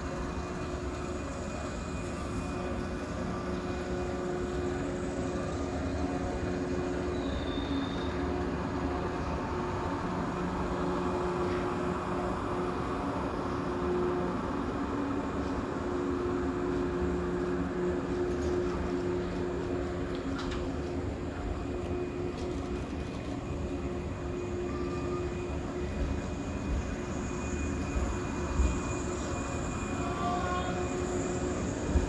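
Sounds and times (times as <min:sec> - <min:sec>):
train wheels rumbling on rail: 0:00.0 - 0:32.0
high squeal: 0:06.9 - 0:08.4, 0:24.4 - 0:32.0.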